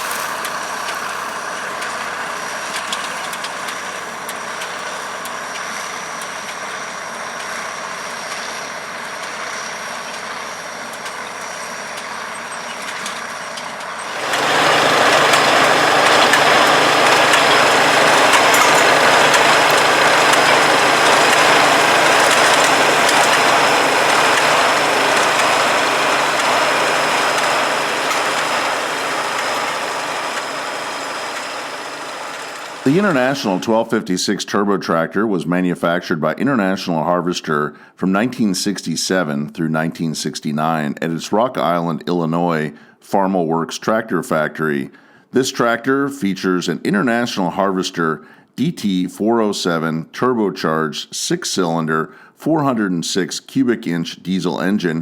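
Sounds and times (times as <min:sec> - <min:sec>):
steady high whine: 0:00.0 - 0:34.1
tractor diesel engine running: 0:00.0 - 0:35.2.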